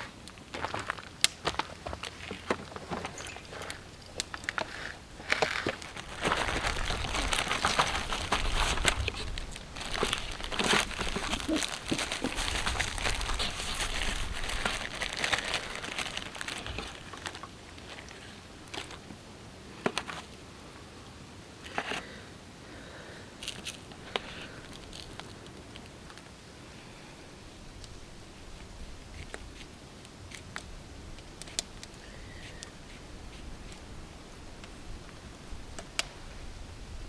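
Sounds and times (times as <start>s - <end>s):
crinkling and crackling: 0.0s - 19.2s, 23.4s - 26.4s, 27.8s - 34.0s.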